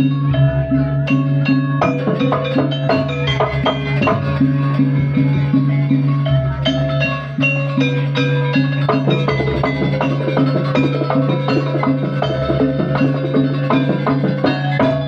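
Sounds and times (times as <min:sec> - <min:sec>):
drums: 0:00.0 - 0:15.0
gamelan music: 0:00.0 - 0:15.0
struck metal keyed instruments: 0:06.0 - 0:15.0
low drone: 0:09.0 - 0:15.0.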